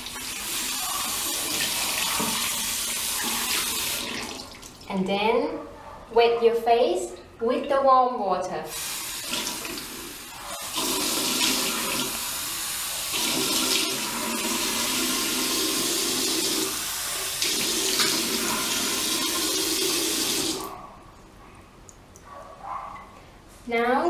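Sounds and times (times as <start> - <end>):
tap water running into sink: 0.0 - 4.9, 8.8 - 20.7.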